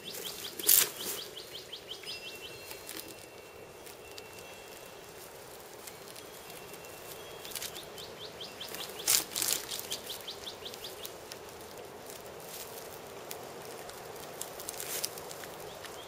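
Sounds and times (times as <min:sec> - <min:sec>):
small clicks and rustles: 0:00.0 - 0:01.6, 0:02.6 - 0:16.0
bird chirping: 0:00.0 - 0:11.3
rustle in dry leaf litter: 0:00.0 - 0:16.0.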